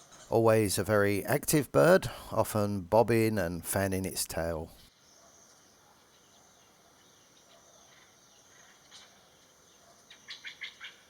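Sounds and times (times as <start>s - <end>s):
bird chirps: 5.0s - 11.0s.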